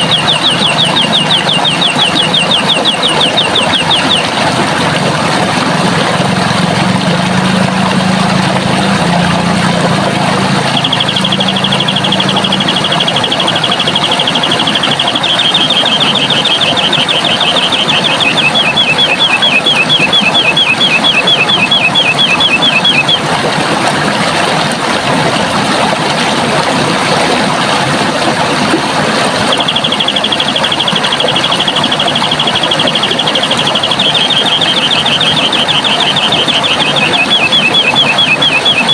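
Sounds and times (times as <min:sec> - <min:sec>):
bird singing high trill: 0:00.0 - 0:04.3, 0:10.6 - 0:23.2, 0:29.5 - 0:38.9
running water rushing: 0:00.0 - 0:38.9.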